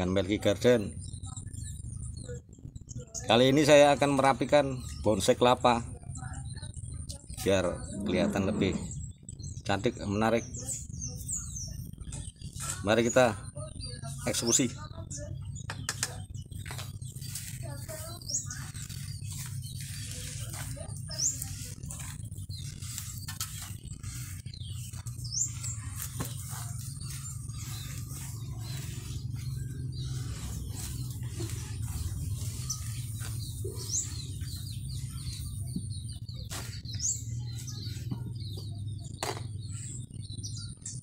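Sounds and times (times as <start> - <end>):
small birds chirping: 0.0 - 41.0
low hum: 16.0 - 38.3.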